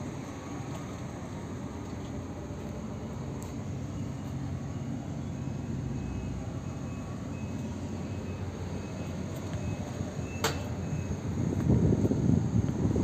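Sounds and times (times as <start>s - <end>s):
low rumble of background noise: 0.0s - 13.0s
wind on microphone: 11.2s - 13.0s.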